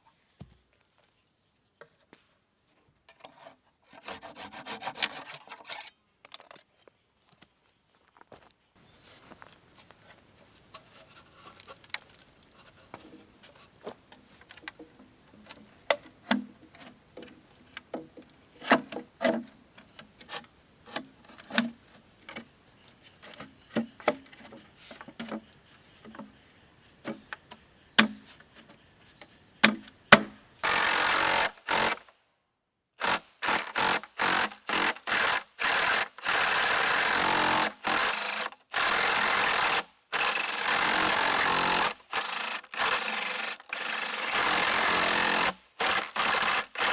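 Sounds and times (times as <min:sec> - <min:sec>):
light knocks and clicks on bamboo: 0:09.8 - 0:26.4, 0:27.0 - 0:30.4.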